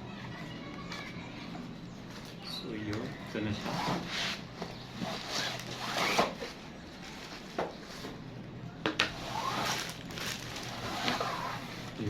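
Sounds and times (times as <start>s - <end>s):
packaging rustling: 9.2s - 12.0s.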